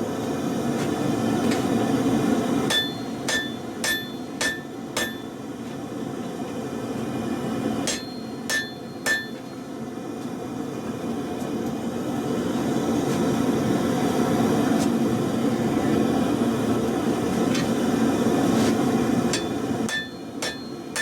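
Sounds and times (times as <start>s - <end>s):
hammer striking steel on anvil: 2.7s - 5.4s, 7.8s - 9.7s, 19.3s - 21.0s.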